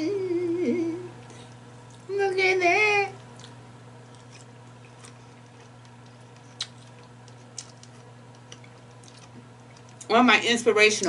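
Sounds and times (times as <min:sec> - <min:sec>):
steady low hum: 0:00.0 - 0:11.0
person chewing: 0:03.2 - 0:10.1.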